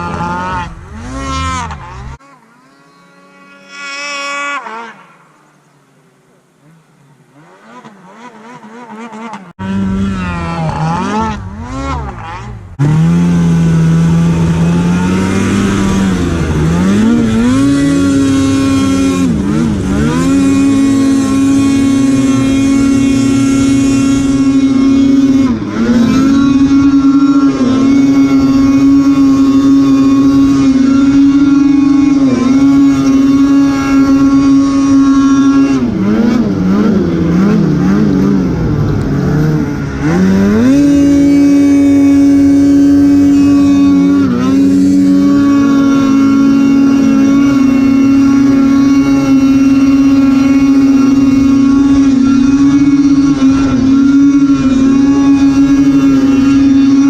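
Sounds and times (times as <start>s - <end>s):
snowmobile engine revving: 0.0s - 5.6s, 6.6s - 57.0s.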